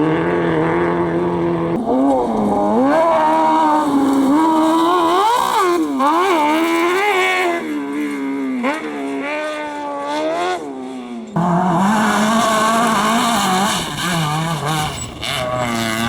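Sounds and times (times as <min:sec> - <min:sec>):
racing engine revving: 0:00.0 - 0:16.0.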